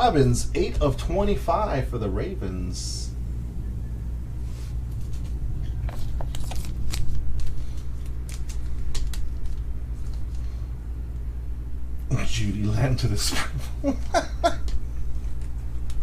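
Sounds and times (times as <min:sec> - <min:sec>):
steady low hum: 0:00.0 - 0:16.0
trading cards flipped by hand: 0:05.0 - 0:10.4.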